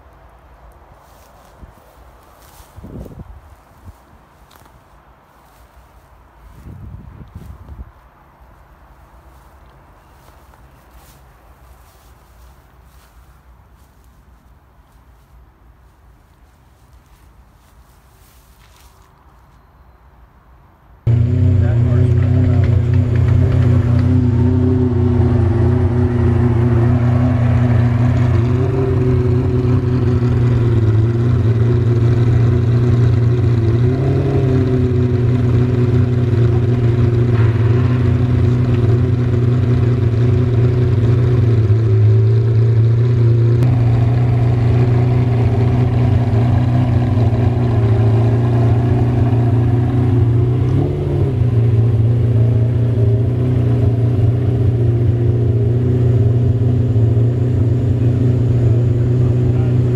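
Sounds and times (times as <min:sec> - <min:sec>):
car engine idling: 0:21.1 - 0:59.9
engine throttle blips: 0:21.1 - 0:59.9.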